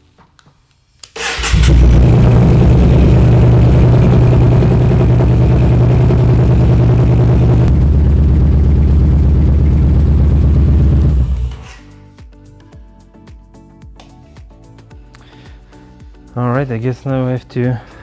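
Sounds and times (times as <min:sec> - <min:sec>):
motorcycle engine idling: 0:01.3 - 0:11.7.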